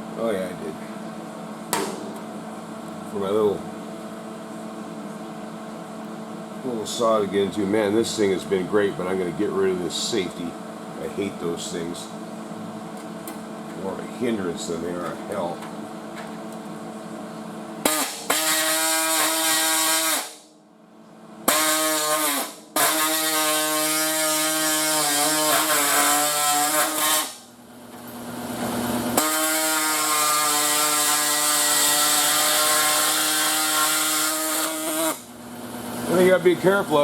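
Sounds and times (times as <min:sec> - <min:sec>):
power saw cutting sheet metal: 0:17.9 - 0:20.4, 0:21.5 - 0:27.4, 0:29.0 - 0:35.3.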